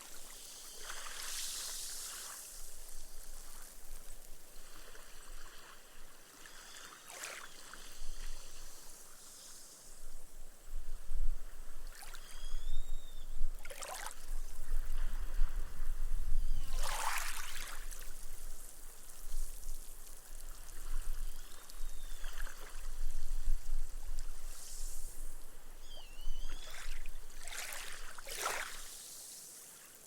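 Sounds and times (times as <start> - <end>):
gentle waves washing on sand: 0.0 - 10.1, 16.6 - 25.8, 26.5 - 30.0.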